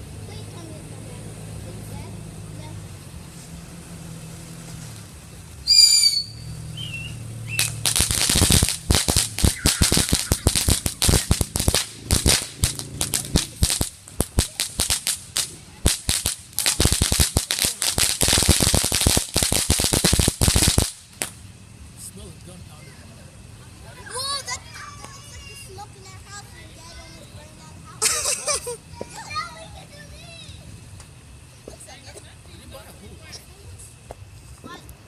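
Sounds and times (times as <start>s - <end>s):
firecrackers cracking: 2.9s - 21.8s, 24.1s - 27.4s, 28.0s - 32.3s
wavering high whistle: 5.6s - 7.8s, 9.4s - 11.4s.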